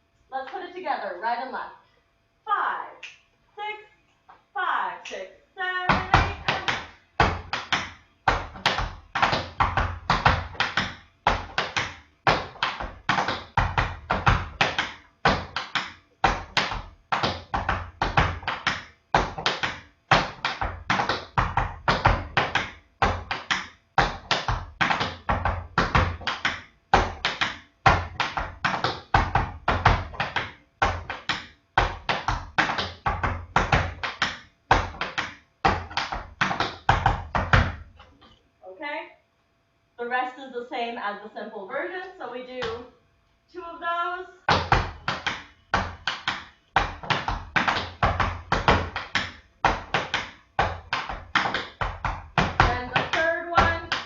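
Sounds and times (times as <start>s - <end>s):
tap shoes on hard floor: 5.9s - 37.9s, 44.5s - 54.0s.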